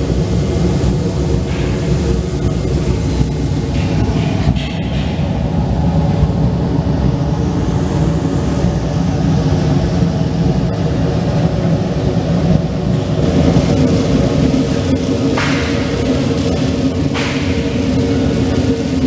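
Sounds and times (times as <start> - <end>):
pressure washer pump and spray: 13.2 - 19.0.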